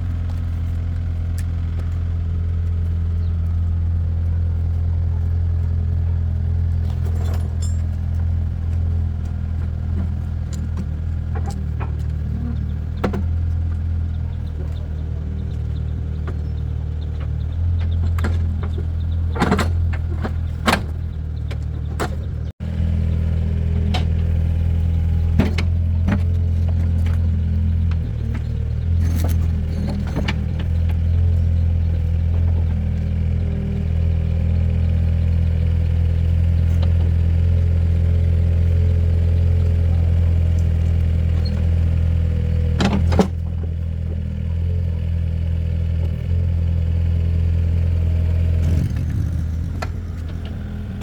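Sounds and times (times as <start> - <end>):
engine idling: 0.0 - 51.0
metallic clinks and knocks: 6.9 - 8.2.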